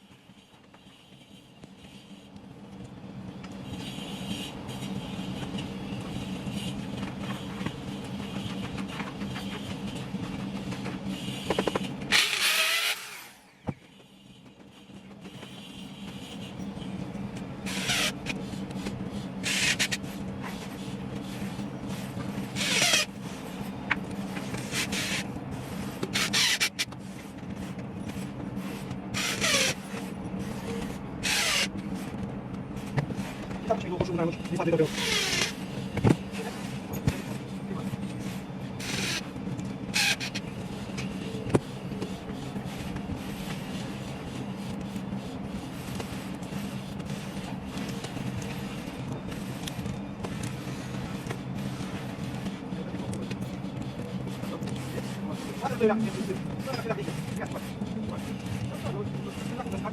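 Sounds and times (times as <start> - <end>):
power tool motor humming: 11.5 - 13.5, 17.7 - 18.3, 19.4 - 20.0, 22.6 - 23.1, 26.1 - 26.8, 29.2 - 29.8, 31.2 - 31.7, 34.9 - 35.6, 38.8 - 39.2, 40.0 - 40.4
high-pitched tool bursts: 12.1 - 13.4, 19.4 - 20.0, 22.6 - 23.1, 26.1 - 26.8, 29.2 - 29.8, 31.2 - 31.7, 39.9 - 40.4.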